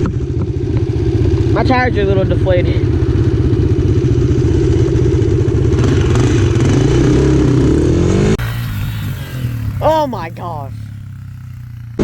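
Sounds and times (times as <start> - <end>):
dirt bike engine revving: 3.0 - 12.0.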